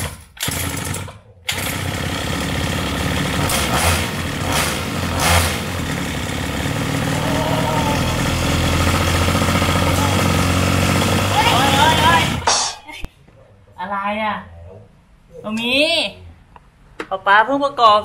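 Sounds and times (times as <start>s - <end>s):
recoil starter pull: 0.0s - 12.5s
small two-stroke engine running: 0.0s - 12.5s
engine throttle blips: 0.5s - 12.5s.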